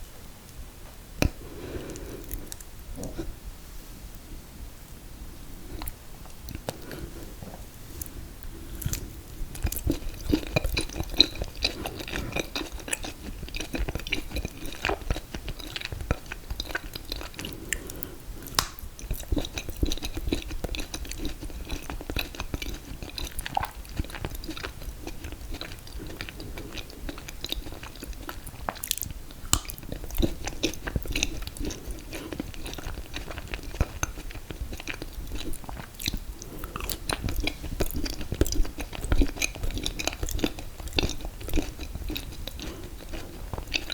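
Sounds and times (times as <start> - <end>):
person chewing: 5.8 - 43.9.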